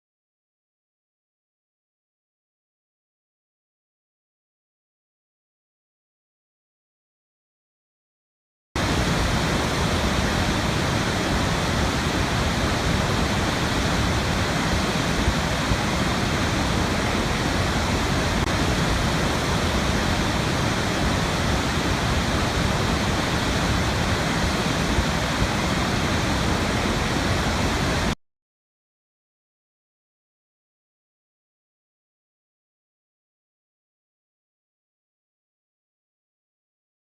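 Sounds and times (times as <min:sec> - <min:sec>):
waterfall rushing: 0:08.8 - 0:28.2.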